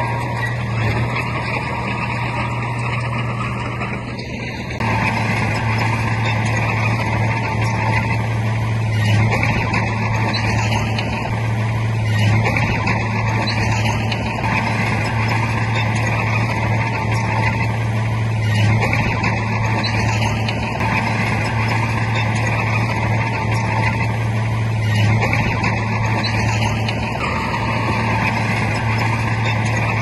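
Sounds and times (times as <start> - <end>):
bulldozer diesel engine running: 0.0 - 30.0.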